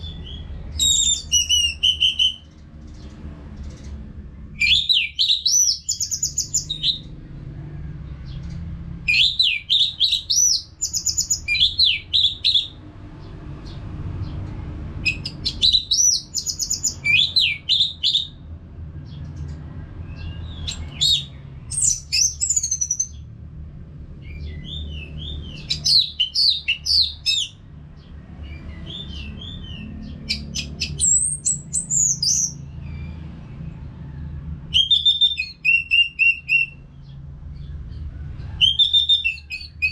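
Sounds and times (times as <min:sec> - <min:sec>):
thrush singing whistled trills: 0:00.0 - 0:02.5, 0:04.6 - 0:07.1, 0:09.1 - 0:12.8, 0:15.0 - 0:18.4, 0:20.1 - 0:23.2, 0:24.2 - 0:27.6, 0:28.5 - 0:33.3, 0:34.7 - 0:36.9, 0:38.6 - 0:39.9.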